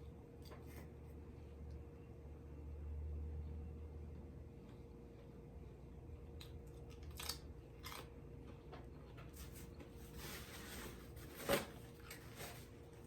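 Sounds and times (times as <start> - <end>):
crunchy pizza chewing: 6.3 - 10.1.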